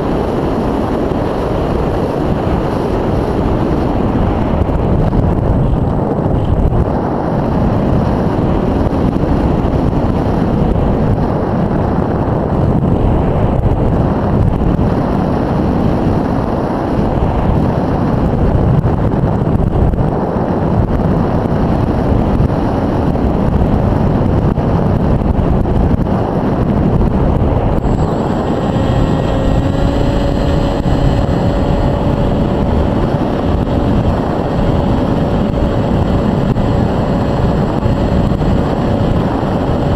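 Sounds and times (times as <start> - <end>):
wind rushing over microphone: 0.0 - 39.9
electric motor whine: 27.4 - 39.9.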